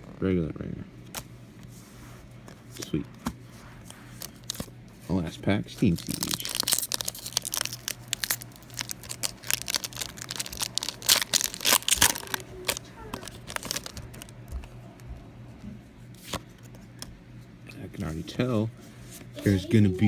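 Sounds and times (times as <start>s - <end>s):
foil wrapper tearing and crinkling: 5.8s - 14.4s.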